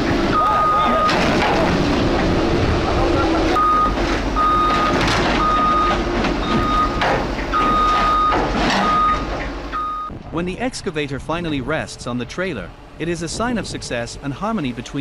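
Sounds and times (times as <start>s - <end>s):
excavator diesel engine running: 0.0s - 15.0s
travel alarm beeping: 0.3s - 1.2s, 3.5s - 10.1s.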